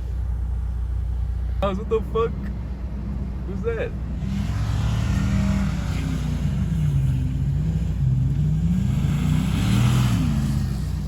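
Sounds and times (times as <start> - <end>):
car engine revving: 2.9 - 11.0.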